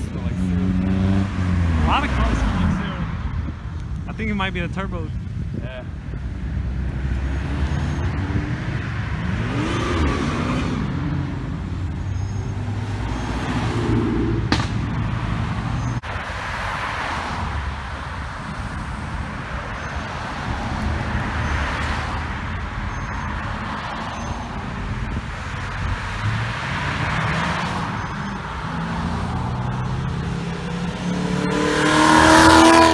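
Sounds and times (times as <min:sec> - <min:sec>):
engine revving: 0:00.0 - 0:05.0, 0:05.6 - 0:32.9
cars driving past: 0:00.0 - 0:32.9
sharp crack: 0:14.4 - 0:15.7.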